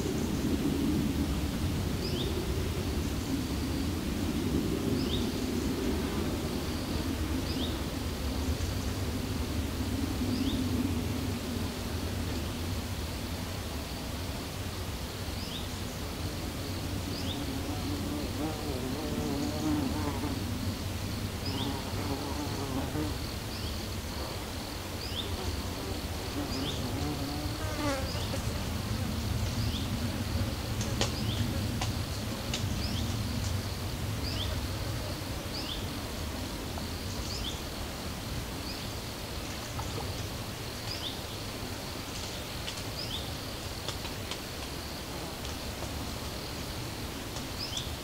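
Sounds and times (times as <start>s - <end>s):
flying insect buzzing: 13.8s - 47.8s.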